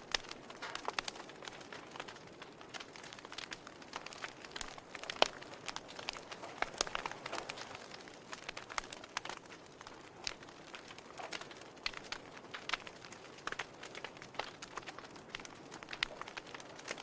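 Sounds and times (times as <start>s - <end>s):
soft steady hiss: 0.0s - 17.0s
wood fire crackling and popping: 0.0s - 17.0s.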